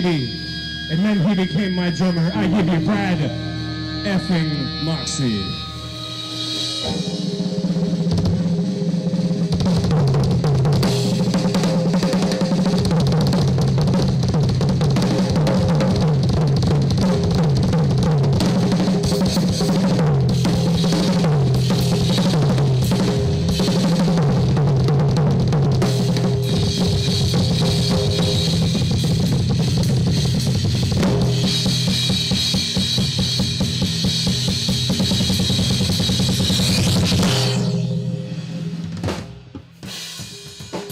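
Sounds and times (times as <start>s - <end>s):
low sustained notes: 0.0s - 8.0s
cymbals: 0.0s - 8.9s, 25.9s - 38.9s.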